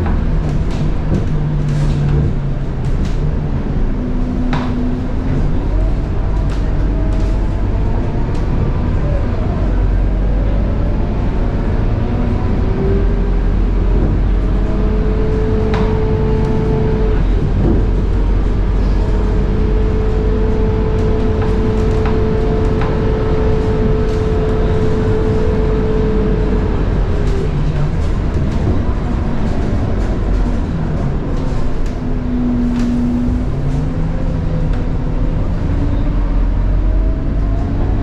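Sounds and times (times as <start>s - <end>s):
bus engine rumble: 0.0s - 38.0s.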